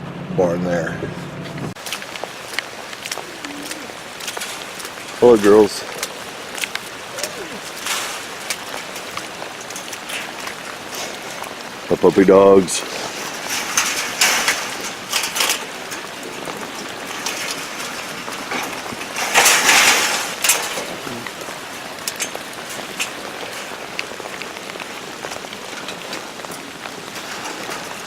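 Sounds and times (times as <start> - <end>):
steady rain falling: 0.4 - 28.0
raindrops ticking: 1.7 - 28.0.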